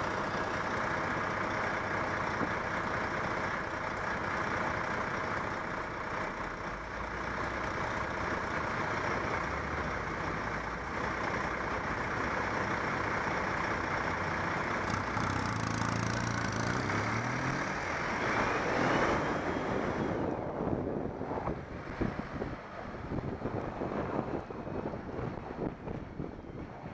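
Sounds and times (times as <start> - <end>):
heavy vehicle engine running: 0.0 - 26.7
traffic rushing: 0.0 - 26.9
wind noise: 19.1 - 26.9.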